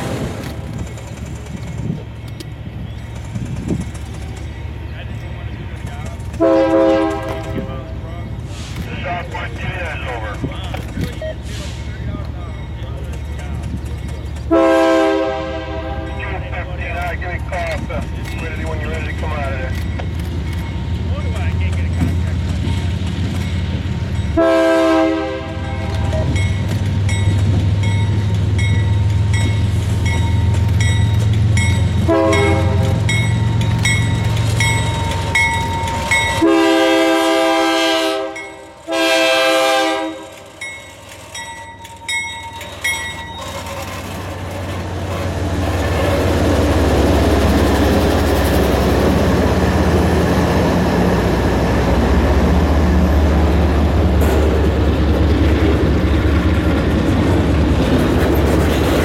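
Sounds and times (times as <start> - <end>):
locomotive engine rumble: 0.0 - 59.0
train wheels clattering on rails: 0.0 - 59.0
locomotive air horn blasts: 6.4 - 7.7, 14.5 - 16.2, 24.4 - 26.4, 32.0 - 33.1, 36.2 - 40.4
bell dinging: 40.6 - 43.8.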